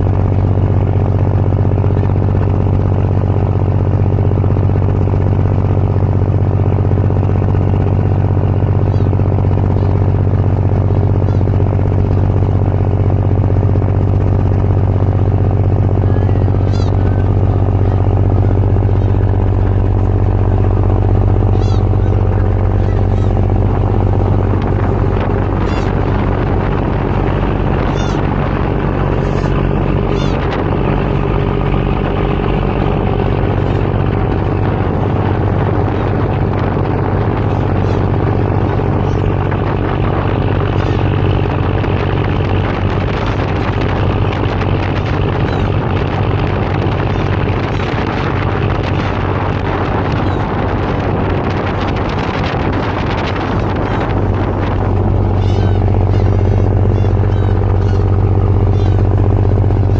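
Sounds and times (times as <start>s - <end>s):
diesel engines droning: 0.0s - 59.9s
high-pitched bird calls: 8.8s - 9.1s, 15.9s - 19.3s, 21.4s - 23.4s, 25.0s - 34.6s, 37.0s - 41.5s, 44.5s - 46.2s, 46.8s - 48.0s, 50.1s - 50.6s, 53.5s - 59.9s.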